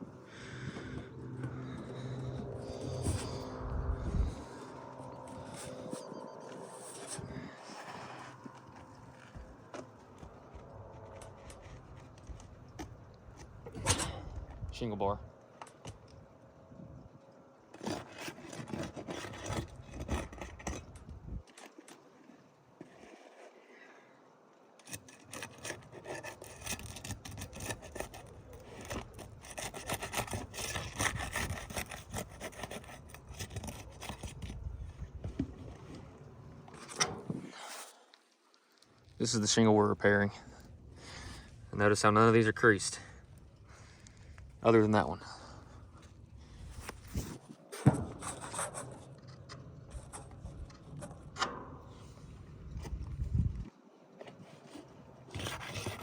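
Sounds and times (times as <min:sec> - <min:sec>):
metal bar scraping under shingles: 0:00.4 - 0:14.4, 0:17.7 - 0:23.8, 0:24.8 - 0:38.4, 0:46.4 - 0:53.5, 0:54.3 - 0:56.0
bar scraping under roof shingles: 0:24.8 - 0:34.6, 0:46.9 - 0:52.4.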